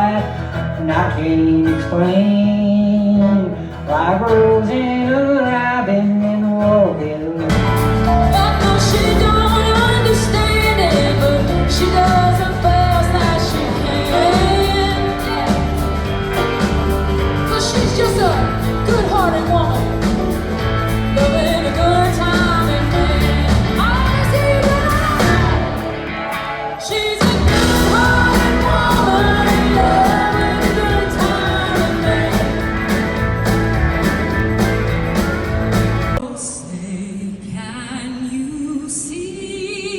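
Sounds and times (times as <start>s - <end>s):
person singing: 0.0s - 34.3s
bass and drums beat: 7.5s - 26.1s, 27.2s - 36.2s.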